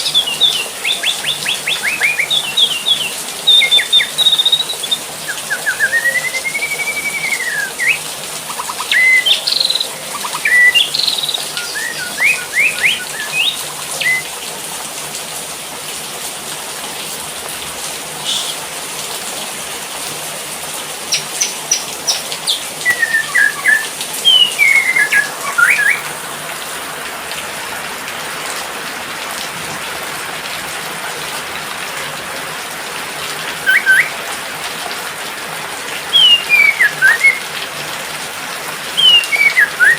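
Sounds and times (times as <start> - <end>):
songbird chirping and whistling: 0.0 - 14.3, 18.2 - 18.6, 21.1 - 26.1, 33.6 - 34.2, 36.1 - 37.4, 39.0 - 39.9
rain falling: 0.0 - 39.9.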